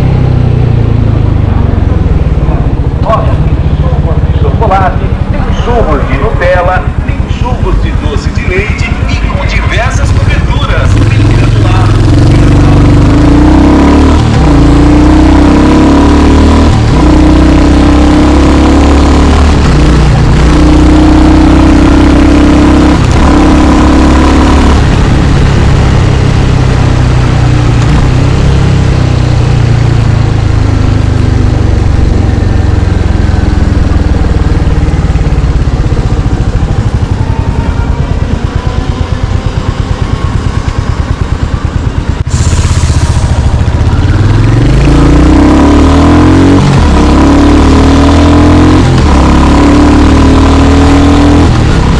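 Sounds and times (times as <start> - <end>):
motorcycle engine shifting gears: 0.0 - 51.9.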